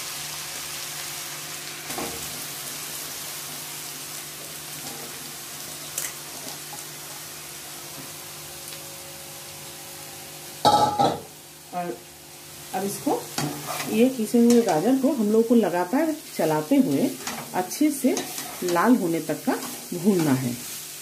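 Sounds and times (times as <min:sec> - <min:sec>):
carrots sizzling in hot fat: 0:00.0 - 0:21.0.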